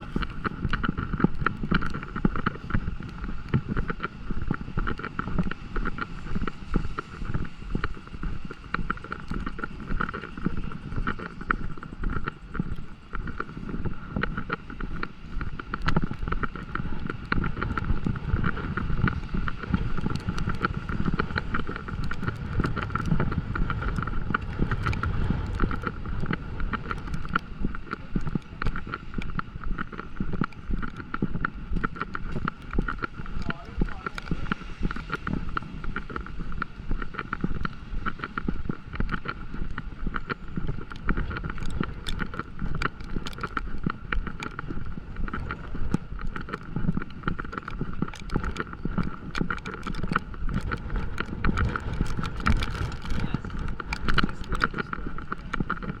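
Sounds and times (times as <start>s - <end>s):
steady low rumble: 0.0s - 56.0s
rain patter: 13.0s - 56.0s.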